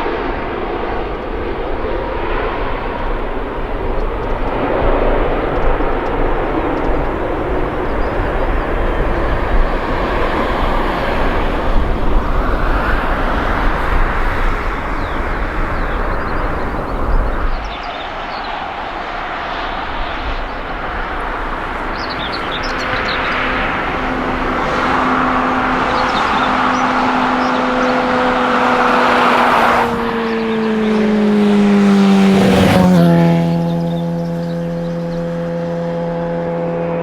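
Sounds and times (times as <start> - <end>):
jet airliner engine hum: 0.0 - 37.0.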